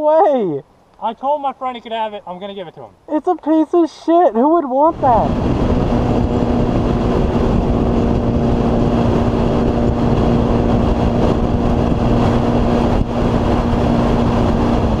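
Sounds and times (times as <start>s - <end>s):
motorcycle engine running: 4.9s - 15.0s.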